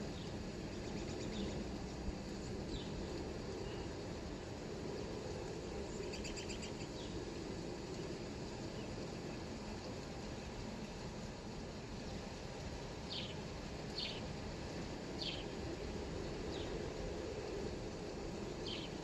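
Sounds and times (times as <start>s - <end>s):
low background hiss: 0.0s - 19.0s
birds chirping: 14.0s - 14.2s, 15.2s - 15.5s.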